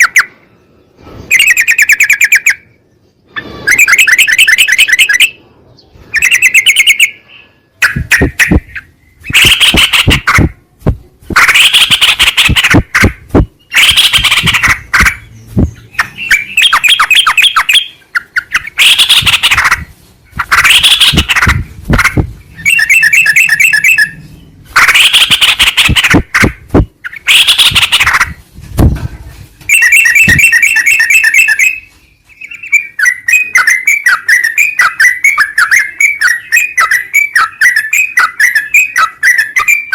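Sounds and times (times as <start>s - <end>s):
bird bubbling chattering song: 6.1s - 7.2s, 7.8s - 10.6s, 11.4s - 24.2s.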